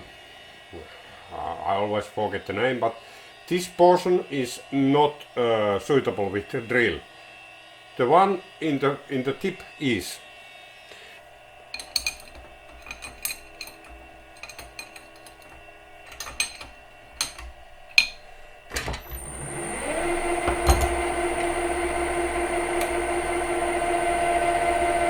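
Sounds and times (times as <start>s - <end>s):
metallic tool clicks and taps: 11.8s - 18.3s
lathe motor running: 11.8s - 25.0s.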